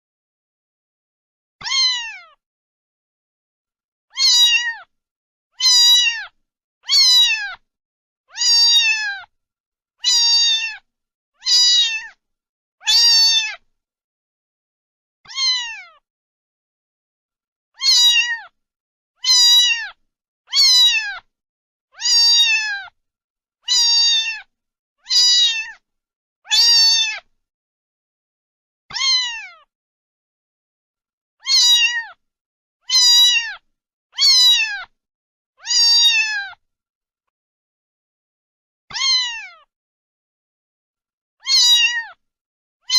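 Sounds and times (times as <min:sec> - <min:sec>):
cat meowing: 0:01.6 - 0:02.4, 0:04.1 - 0:04.9, 0:05.6 - 0:07.6, 0:08.3 - 0:09.3, 0:10.0 - 0:12.2, 0:12.8 - 0:13.6, 0:15.3 - 0:16.0, 0:17.8 - 0:18.6, 0:19.2 - 0:21.3, 0:22.0 - 0:23.0, 0:23.6 - 0:25.8, 0:26.5 - 0:27.3, 0:28.9 - 0:29.7, 0:31.4 - 0:32.2, 0:32.8 - 0:35.0, 0:35.6 - 0:36.6, 0:38.9 - 0:39.7, 0:41.4 - 0:42.2.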